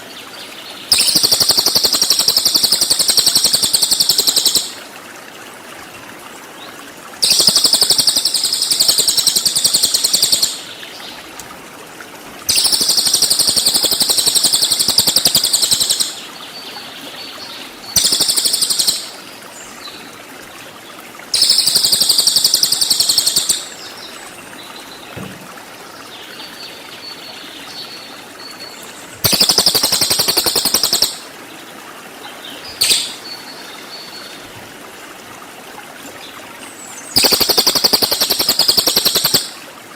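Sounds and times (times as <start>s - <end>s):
bird singing fast high trills: 29.2s - 31.2s.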